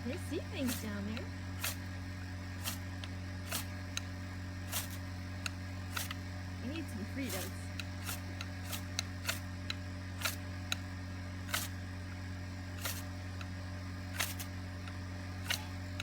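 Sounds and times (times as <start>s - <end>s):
ferro rod scraping rasps: 0.0s - 1.8s, 2.6s - 3.8s, 4.7s - 5.1s, 7.2s - 9.5s, 12.8s - 13.1s, 14.1s - 14.5s, 15.4s - 15.8s
steady low hum: 0.0s - 16.0s.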